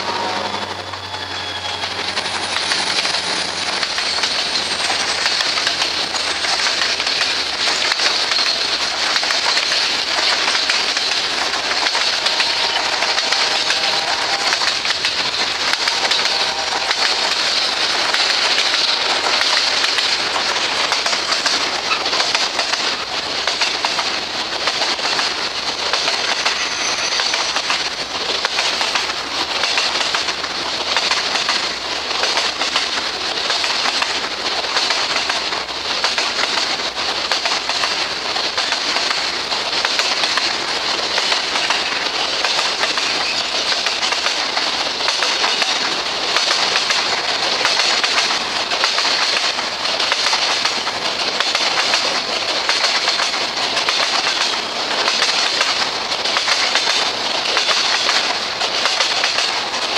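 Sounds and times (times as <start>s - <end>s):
diesel locomotive low hum: 0.0s - 6.3s
train wheels clattering on rails: 0.0s - 59.9s.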